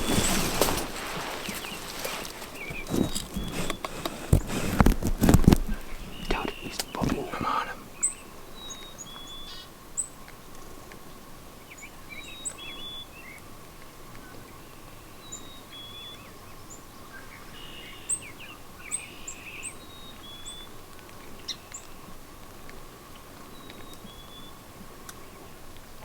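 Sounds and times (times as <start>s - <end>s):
songbirds chirping and singing: 5.7s - 9.6s.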